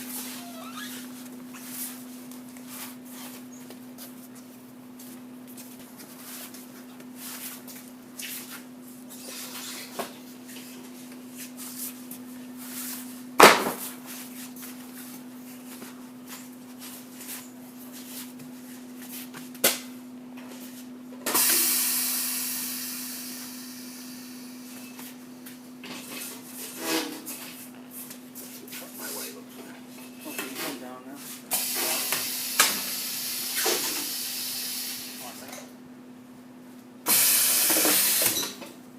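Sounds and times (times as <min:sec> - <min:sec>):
tire machine humming: 0:21.2 - 0:25.0
loud air hiss: 0:21.4 - 0:24.6, 0:31.5 - 0:35.2, 0:37.1 - 0:38.3.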